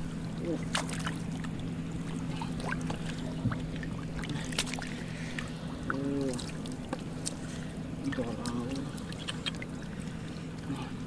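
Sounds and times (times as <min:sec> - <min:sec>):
steady low hum: 0:00.0 - 0:11.0
hands splashing shallow water: 0:00.5 - 0:05.5, 0:06.2 - 0:09.8.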